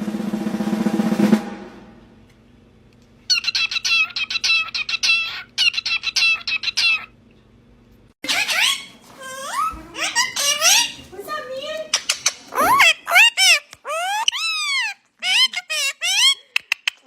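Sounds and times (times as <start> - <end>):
snare drum roll: 0.0 - 2.2
parrot making short high calls: 12.5 - 16.3.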